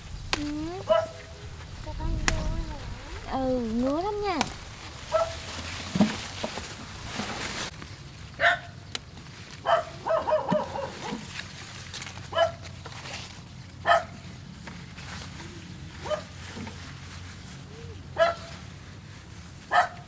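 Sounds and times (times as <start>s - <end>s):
dog barking: 0.8s - 1.4s, 5.1s - 5.5s, 8.4s - 8.7s, 9.6s - 11.1s, 12.3s - 12.6s, 13.8s - 14.2s, 16.0s - 16.3s, 18.2s - 18.5s, 19.7s - 20.0s.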